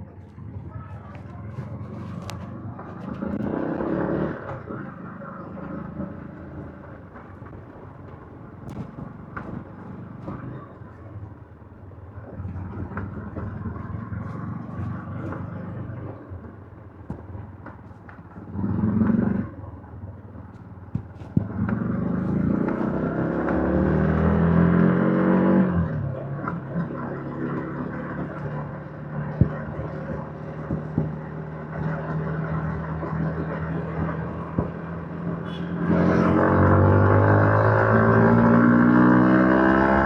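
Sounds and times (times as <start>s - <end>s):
motorcycle engine revving: 1.7s - 10.6s, 17.1s - 40.0s.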